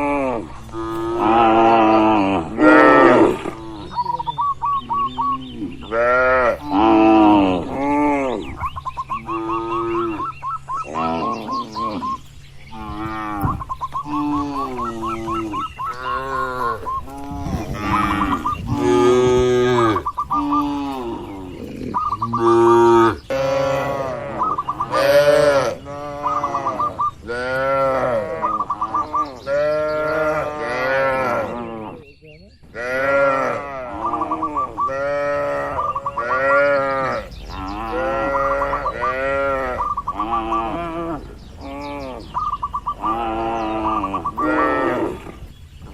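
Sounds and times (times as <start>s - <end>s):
cattle mooing: 0.0s - 4.2s, 4.9s - 8.5s, 9.2s - 32.1s, 32.8s - 45.5s
warbling bird chirps: 3.3s - 6.0s, 8.2s - 27.4s, 28.3s - 30.3s, 33.9s - 45.9s.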